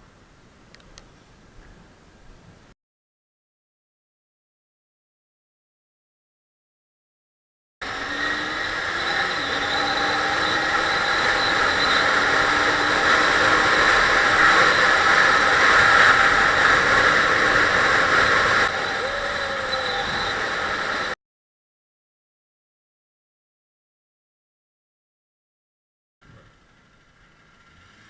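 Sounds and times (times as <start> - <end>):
motorcycle engine running: 7.8 - 19.0, 26.2 - 28.0
wind noise on helmet: 7.9 - 21.2.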